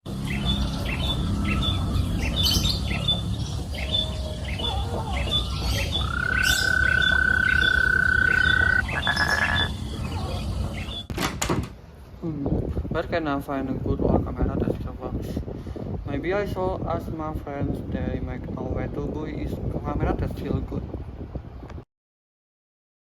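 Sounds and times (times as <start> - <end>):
birds chirping: 0.1 - 11.1.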